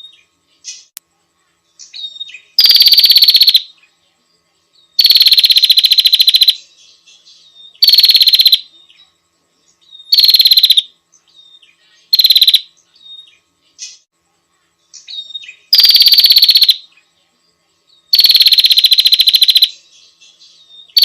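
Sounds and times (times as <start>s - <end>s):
soft bird chirps: 0.0s - 21.0s
bird trilling call: 2.0s - 3.7s, 5.0s - 6.6s, 7.7s - 8.7s, 10.0s - 10.9s, 12.1s - 13.3s, 15.1s - 16.8s, 18.1s - 19.8s.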